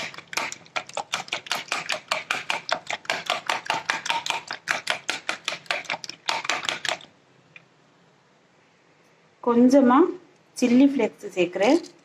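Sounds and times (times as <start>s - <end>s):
eggs beaten in a bowl: 0.0s - 7.1s, 11.6s - 12.0s.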